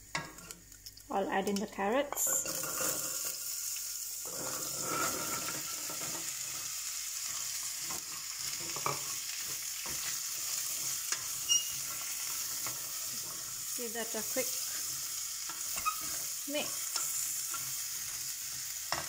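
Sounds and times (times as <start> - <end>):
carrots sizzling in hot oil: 0.0 - 19.0.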